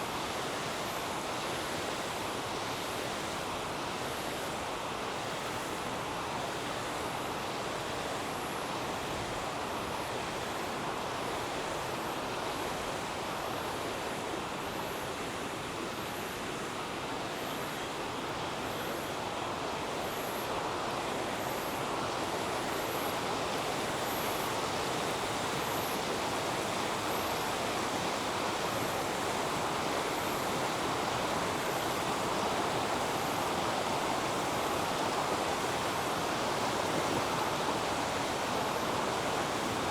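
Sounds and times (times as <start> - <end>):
river water rushing: 16.0 - 39.9.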